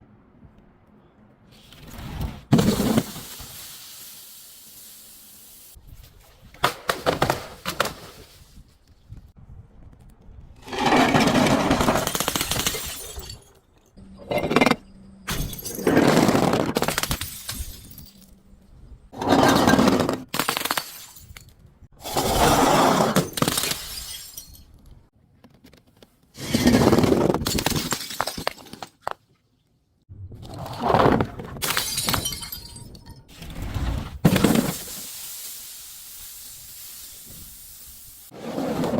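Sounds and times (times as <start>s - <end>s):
glass bottles crushing and shattering: 11.2s - 18.4s, 19.3s - 21.5s, 23.1s - 24.8s, 26.5s - 29.0s, 31.6s - 33.3s.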